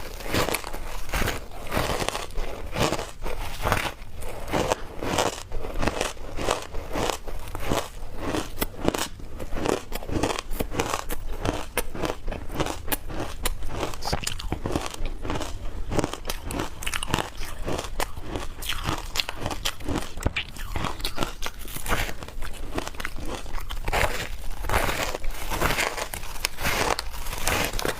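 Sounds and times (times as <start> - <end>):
crunching of shaved ice: 0.0 - 27.9.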